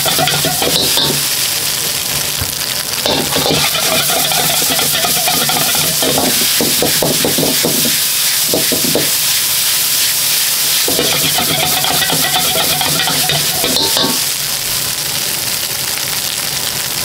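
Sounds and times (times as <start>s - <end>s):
metal utensil scraping a pan: 0.0s - 1.2s, 3.1s - 14.3s
food sizzling in a hot pan: 0.0s - 17.0s.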